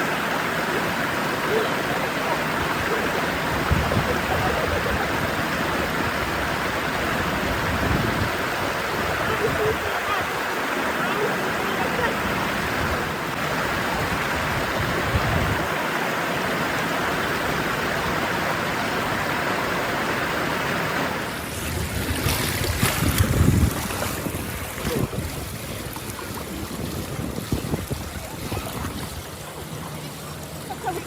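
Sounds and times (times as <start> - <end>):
river water flowing: 0.0 - 31.0
wind buffeting the microphone: 2.6 - 10.4, 12.2 - 15.8, 21.6 - 29.8.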